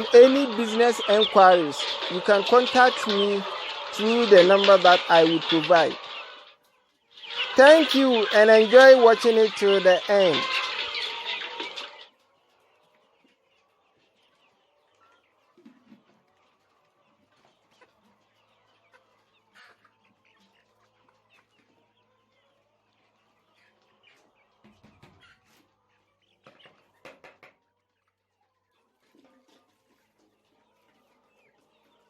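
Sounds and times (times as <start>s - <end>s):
chickens clucking and chirping: 0.0s - 32.0s.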